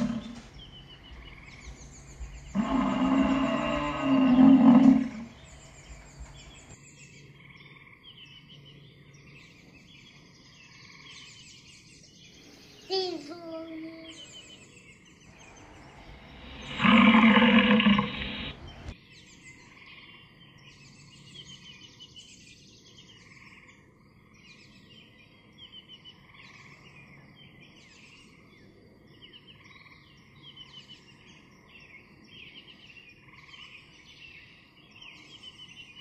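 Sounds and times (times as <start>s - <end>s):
bison bellowing: 0.0s - 0.5s, 2.3s - 6.4s, 15.3s - 18.9s
bird chirps: 0.0s - 36.0s
outdoor background noise: 0.0s - 36.0s.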